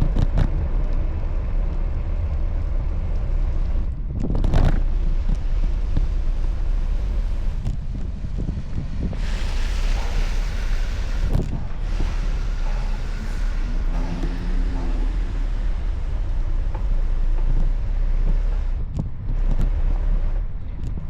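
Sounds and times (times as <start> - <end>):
wind buffeting microphone: 0.0 - 21.0
hiss: 9.1 - 18.8.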